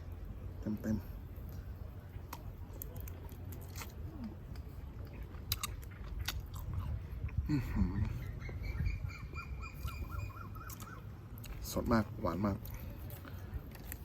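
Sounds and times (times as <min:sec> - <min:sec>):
person chewing crunchy prawn: 0:02.2 - 0:08.2, 0:10.6 - 0:14.0.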